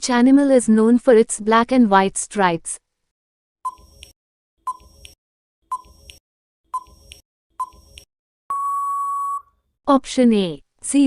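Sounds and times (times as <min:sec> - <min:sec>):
short countdown beeps: 0:07.6 - 0:09.5
long steady beep: 0:08.5 - 0:09.5.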